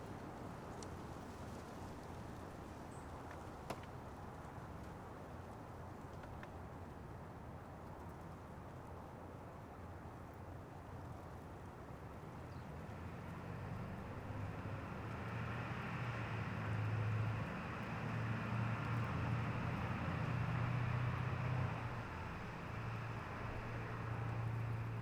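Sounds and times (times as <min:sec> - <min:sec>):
vehicle passing on road: 0:12.8 - 0:25.0.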